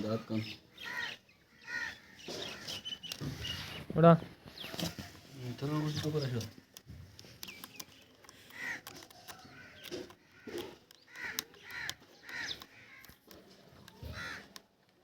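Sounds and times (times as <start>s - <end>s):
crows cawing: 0.1s - 3.4s, 8.4s - 14.8s
faint clicks: 6.0s - 15.0s.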